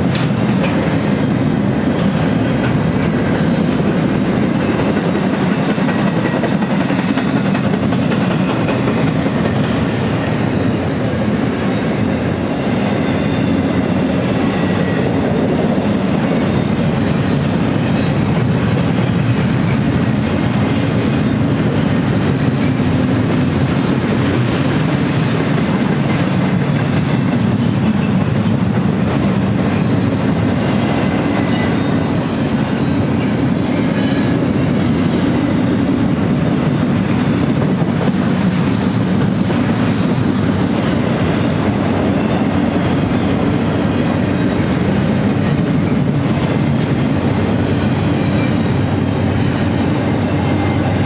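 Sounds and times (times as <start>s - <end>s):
wheels clacking over rail joints: 0.0s - 11.1s
freight train rumbling past: 0.0s - 51.0s.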